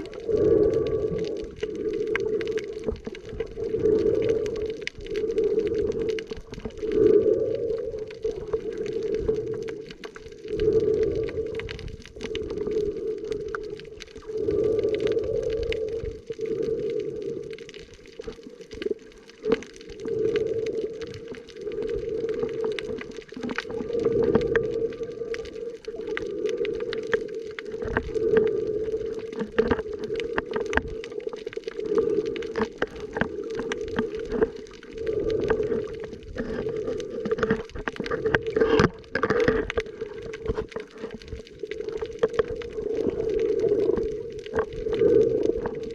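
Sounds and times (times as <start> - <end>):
low underwater hum: 0.0 - 45.9
underwater clicks and knocks: 29.1 - 45.9.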